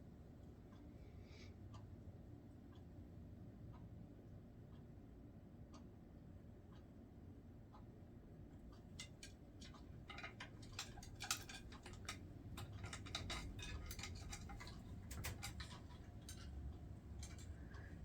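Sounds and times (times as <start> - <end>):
light clicks and taps: 8.6 - 18.0.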